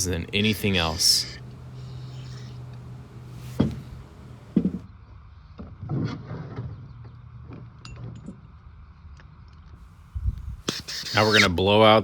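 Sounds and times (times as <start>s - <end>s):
short rustle: 0.0s - 4.8s.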